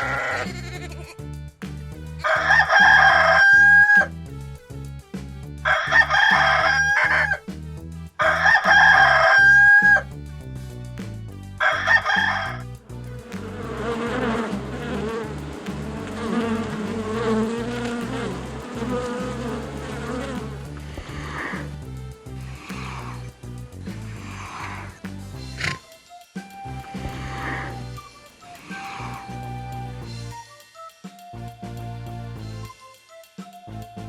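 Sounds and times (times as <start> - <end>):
background music with low beat: 0.5 - 34.0
rooster crowing: 2.2 - 4.1, 5.6 - 7.4, 8.2 - 10.0, 11.6 - 12.7
insect buzz: 12.9 - 25.9, 26.7 - 30.2.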